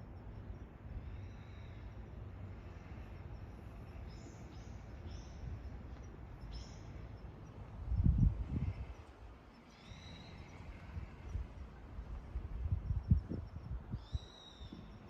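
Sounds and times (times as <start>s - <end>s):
steady low rumble: 0.0s - 9.5s
bird chirps: 9.6s - 10.6s, 14.0s - 15.0s.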